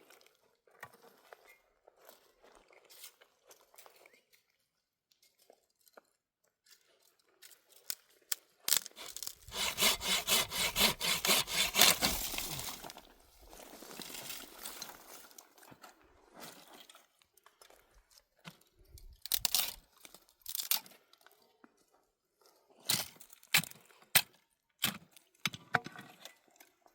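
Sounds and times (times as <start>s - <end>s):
wood snapping: 8.8s - 13.0s
sawing wood by hand: 8.8s - 13.1s
scraping: 8.9s - 14.3s.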